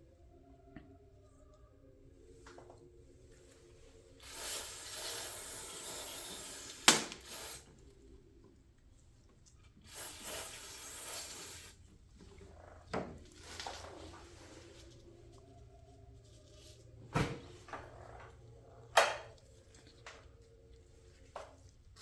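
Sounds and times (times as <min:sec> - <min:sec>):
hissing spray bursts: 0:04.2 - 0:07.7, 0:09.9 - 0:11.8.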